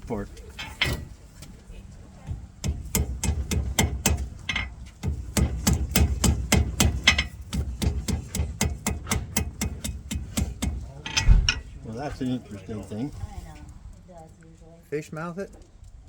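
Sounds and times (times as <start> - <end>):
hammer striking metal on anvil: 2.6 - 11.7.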